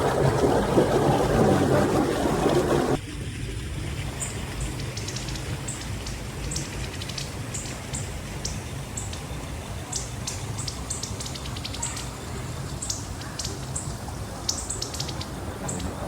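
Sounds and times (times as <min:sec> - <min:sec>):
low steady rushing noise: 0:00.0 - 0:16.0
small birds chirping: 0:04.2 - 0:16.0.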